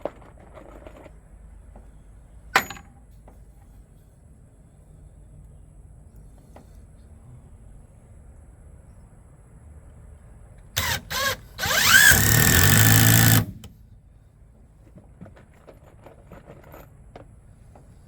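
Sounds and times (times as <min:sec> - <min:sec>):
power tool motor spinning: 0:10.8 - 0:13.7.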